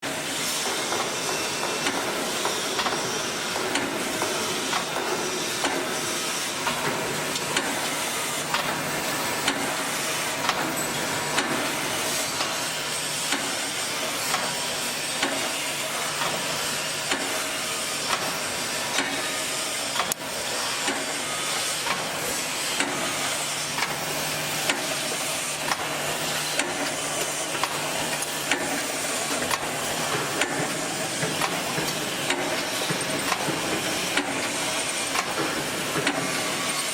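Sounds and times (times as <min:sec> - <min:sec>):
welding machine hiss and hum: 0:00.0 - 0:36.9
machine clacking: 0:00.6 - 0:06.0, 0:06.6 - 0:12.6, 0:23.8 - 0:36.9.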